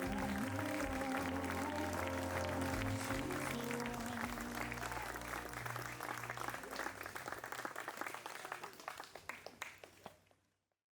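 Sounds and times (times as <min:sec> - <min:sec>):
music: 0:00.0 - 0:07.3
crowd clapping: 0:00.0 - 0:10.4.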